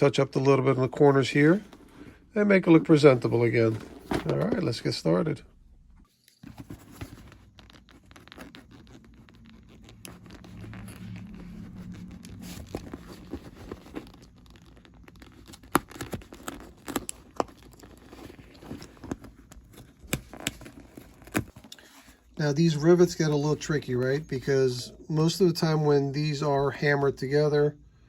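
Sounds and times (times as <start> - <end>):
scraping: 0.7 - 5.1
rustling bag: 0.8 - 4.9, 6.1 - 22.8
fabric tearing: 7.5 - 18.6.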